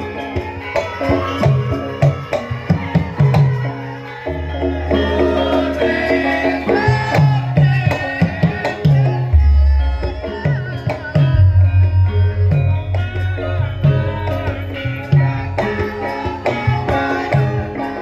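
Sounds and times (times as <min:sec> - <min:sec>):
bronze metallophones: 0:00.0 - 0:18.0
hand drum strokes: 0:08.9 - 0:17.6
deep gong stroke: 0:11.3 - 0:14.2.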